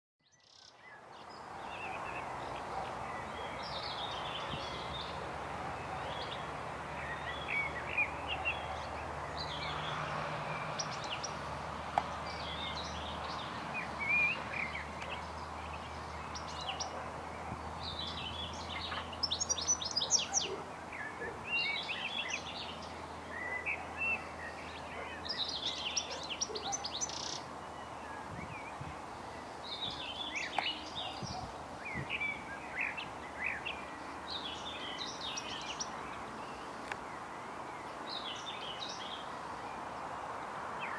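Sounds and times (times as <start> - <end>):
wild birds singing and chirping: 0.2 - 40.9.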